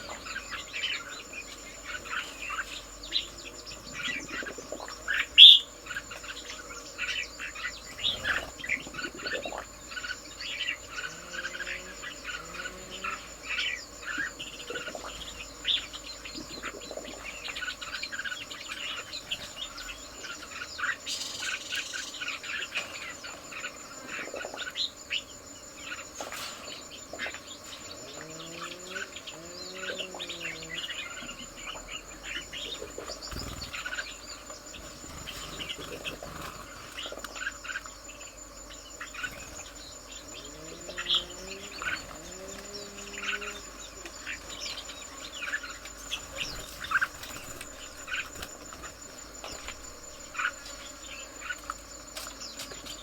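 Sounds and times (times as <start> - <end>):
birds chirping: 0.0 - 53.0
high-pitched insect drone: 0.0 - 53.0
low curved bird calls: 26.4 - 37.9, 39.0 - 51.6.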